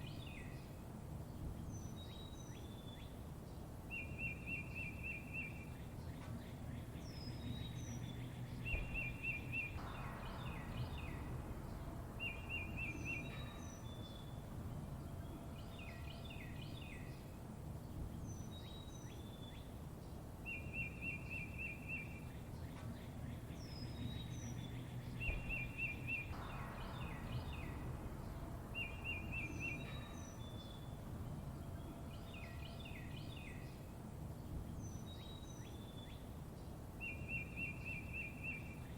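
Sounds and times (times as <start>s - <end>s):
songbirds chirping: 0.0s - 38.9s
low background rumble: 5.7s - 20.5s, 22.1s - 37.0s.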